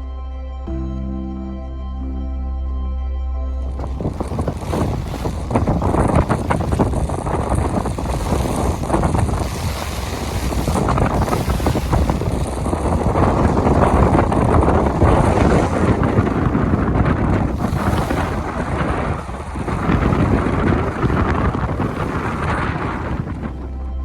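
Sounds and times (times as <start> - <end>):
intro music: 0.0 - 8.5
water rushing along hull: 3.5 - 24.0
wind buffeting microphone: 3.7 - 24.0.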